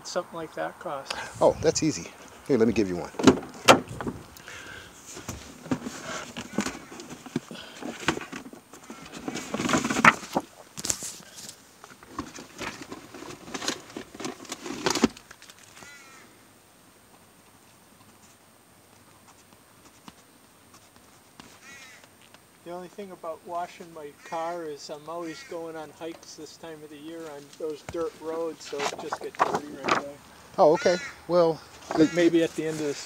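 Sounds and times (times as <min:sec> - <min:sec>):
clicks and rustling from handling: 0:05.1 - 0:15.9, 0:27.1 - 0:30.2
harsh animal calls: 0:15.8 - 0:16.4, 0:21.6 - 0:22.0, 0:30.4 - 0:33.0.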